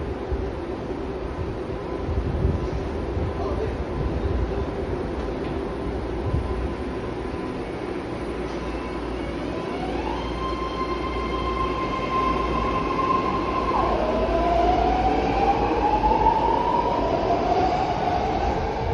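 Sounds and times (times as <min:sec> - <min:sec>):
train rumble: 0:10.8 - 0:18.9.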